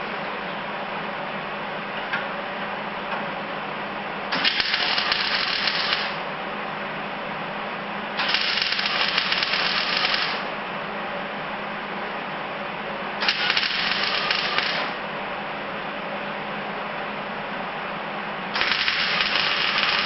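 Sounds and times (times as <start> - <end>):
steady background hum: 0.0 - 20.0
welder crackling: 4.4 - 6.2, 8.2 - 10.5, 13.2 - 15.0, 18.6 - 20.0.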